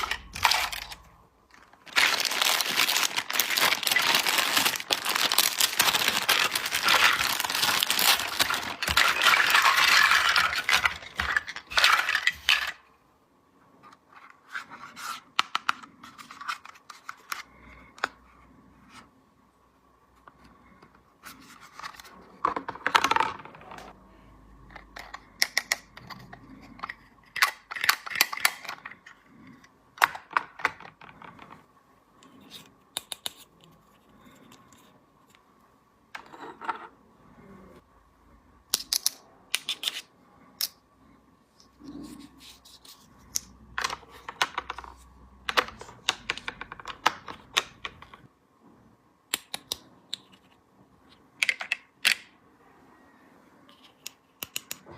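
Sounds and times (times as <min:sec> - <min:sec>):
plastic toy pieces clicking: 0:26.8 - 0:28.9.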